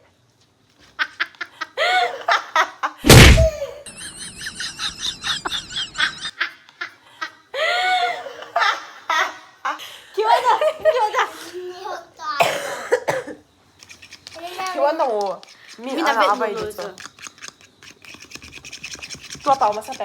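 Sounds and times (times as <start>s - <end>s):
children laughing and giggling: 0.8s - 12.1s
loud thump: 3.0s - 3.6s.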